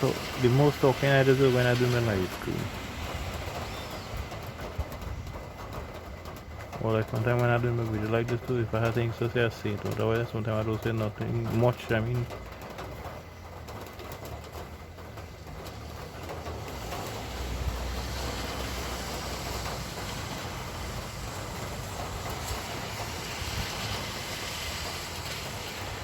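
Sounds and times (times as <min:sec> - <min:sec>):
tyres hissing on wet road: 0:00.0 - 0:05.0, 0:14.9 - 0:26.0
vehicle engine rumble passing: 0:11.0 - 0:26.0.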